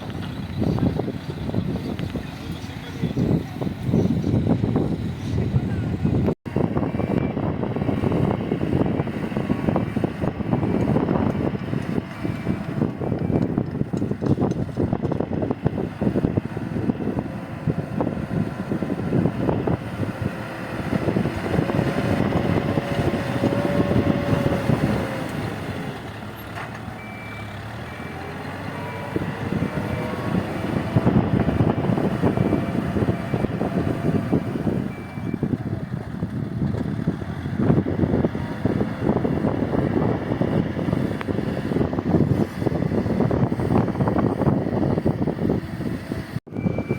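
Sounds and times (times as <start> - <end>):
heavy diesel machine engine: 0.0 - 46.9
reversing alarm beeping: 27.0 - 30.2, 32.3 - 35.5, 46.5 - 46.9.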